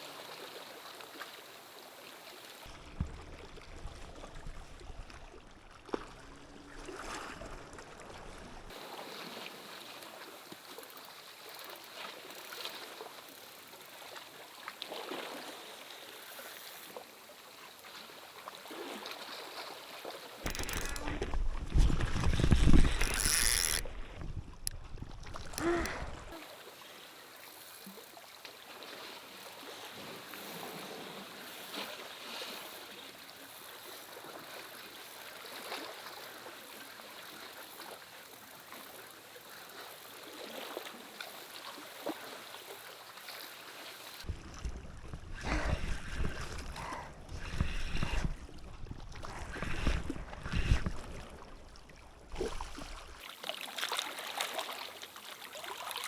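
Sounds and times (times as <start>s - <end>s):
rain and sea water hissing: 25.4s - 53.2s.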